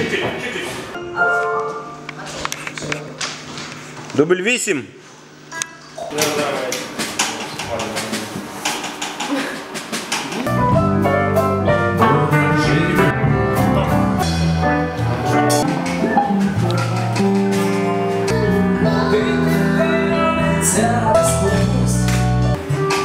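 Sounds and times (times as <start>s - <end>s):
live band playing: 9.7s - 23.0s
person singing: 11.6s - 14.3s, 17.8s - 22.9s.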